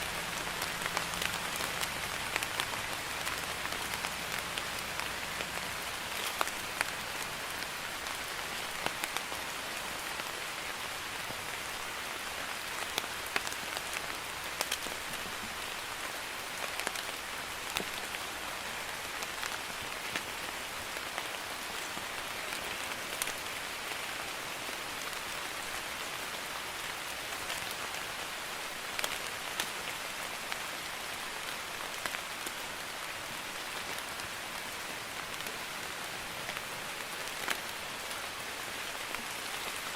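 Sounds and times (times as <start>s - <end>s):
light rain pattering: 0.0s - 39.9s
raindrop ticks: 0.3s - 9.3s, 12.6s - 15.1s, 21.9s - 23.4s, 28.9s - 30.6s.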